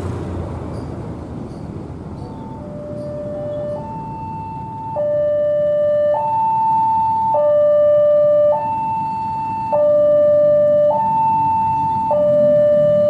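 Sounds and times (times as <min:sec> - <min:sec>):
two-tone electronic siren: 0:02.4 - 0:13.0.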